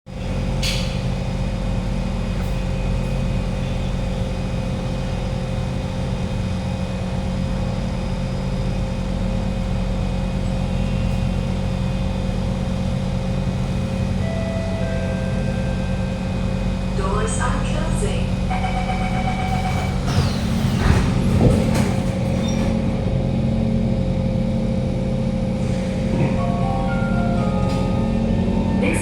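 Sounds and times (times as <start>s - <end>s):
train car hum and rumble: 0.1s - 29.0s
electrical equipment tones: 14.0s - 21.0s.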